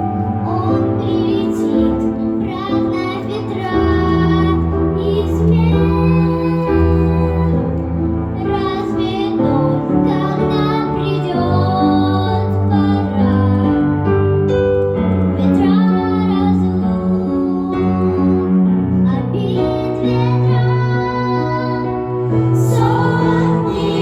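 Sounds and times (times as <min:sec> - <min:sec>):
instrumental accompaniment: 0:00.0 - 0:24.0
high voice singing with vibrato: 0:15.4 - 0:24.0.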